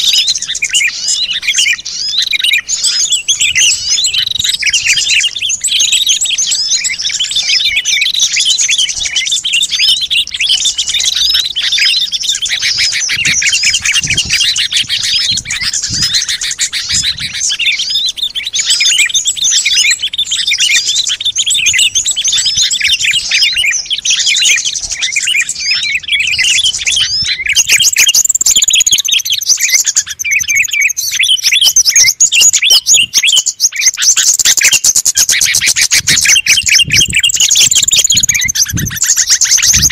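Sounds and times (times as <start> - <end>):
small songbirds chattering and chirping: 0.0 - 39.9.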